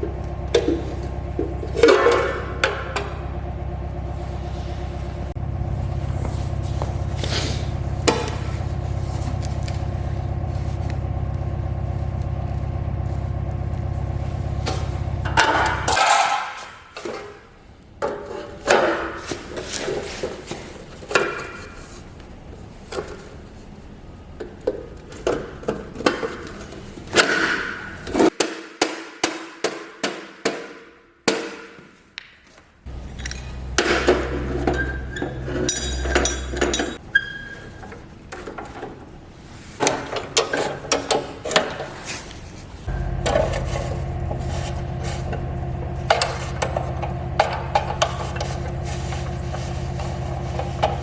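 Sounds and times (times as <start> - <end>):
low machine hum: 0.0 - 16.2, 32.9 - 40.4, 41.2 - 51.0.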